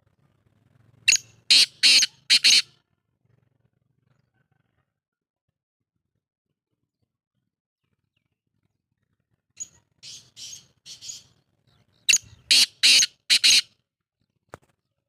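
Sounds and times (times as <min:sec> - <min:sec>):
francolin harsh grating calls: 0:01.1 - 0:02.6, 0:12.1 - 0:13.6.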